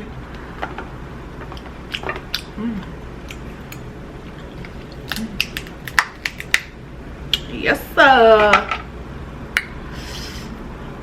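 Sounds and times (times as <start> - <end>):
crab shell cracking: 4.5 - 6.8.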